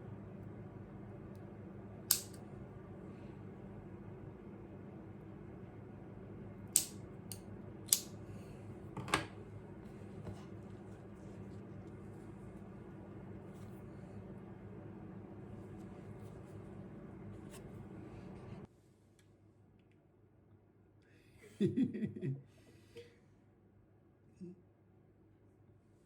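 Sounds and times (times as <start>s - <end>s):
steady low hum: 0.0s - 19.1s
light click: 2.1s - 2.4s, 6.8s - 8.2s.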